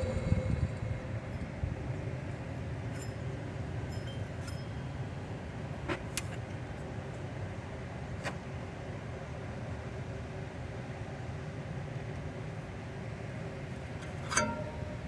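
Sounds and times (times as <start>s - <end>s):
car engine rumbling: 0.0s - 3.1s.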